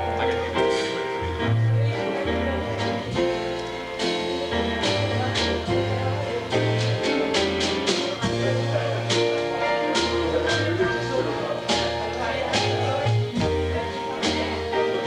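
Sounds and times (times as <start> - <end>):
upbeat band music: 0.0 - 15.0
drum hits: 11.7 - 14.7.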